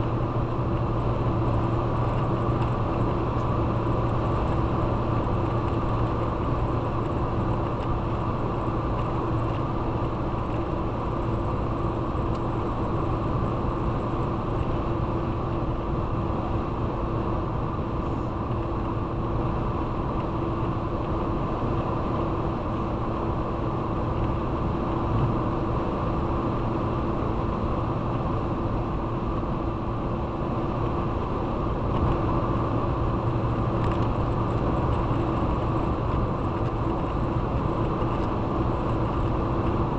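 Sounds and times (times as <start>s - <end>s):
vehicle engine and tyre noise: 0.0s - 39.9s.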